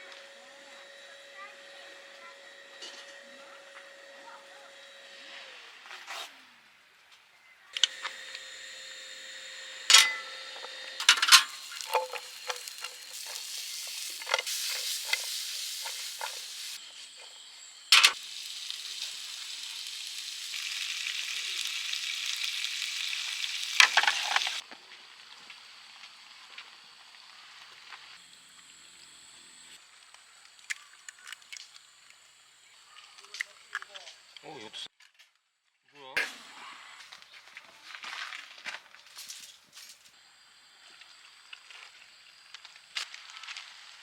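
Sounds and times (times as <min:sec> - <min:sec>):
food sizzling in a pan: 0:11.0 - 0:26.2.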